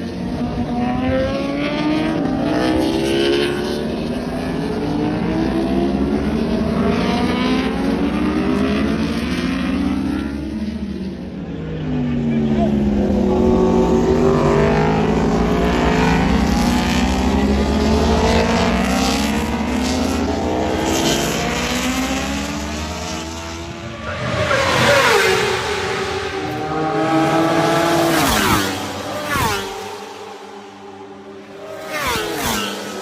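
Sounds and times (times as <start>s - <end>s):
motorcycles passing by: 0.0s - 33.0s
racing motorcycle engines revving: 0.0s - 33.0s.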